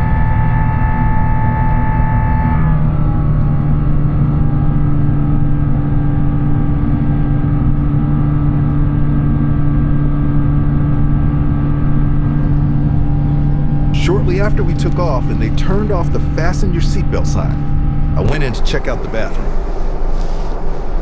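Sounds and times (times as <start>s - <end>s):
jet engine rumble in cabin: 0.0s - 21.0s.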